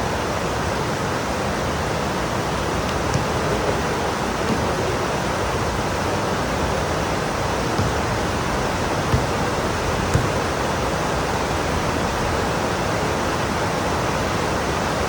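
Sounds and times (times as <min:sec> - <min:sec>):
low thuds: 0:02.7 - 0:05.9, 0:07.1 - 0:13.2.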